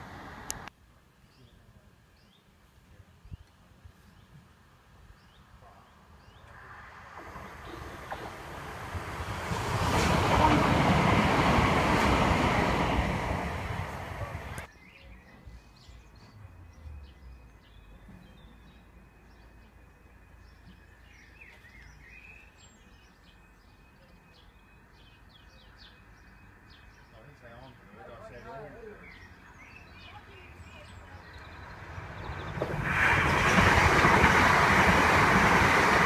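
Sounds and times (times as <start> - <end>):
passenger train rushing past: 0.0 - 0.7, 6.5 - 14.7, 31.1 - 36.0.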